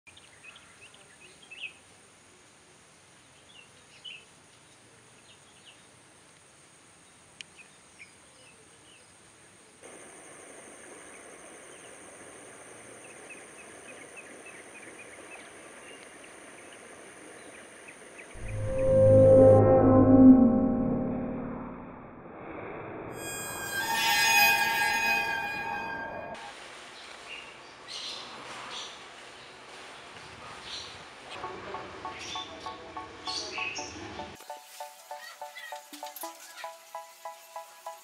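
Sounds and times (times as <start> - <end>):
steady high whine: 18.4 - 22.2.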